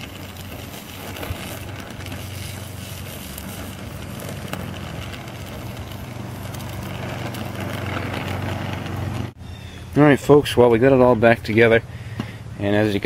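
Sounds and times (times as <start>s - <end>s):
torch burning with hiss: 0.0s - 9.4s.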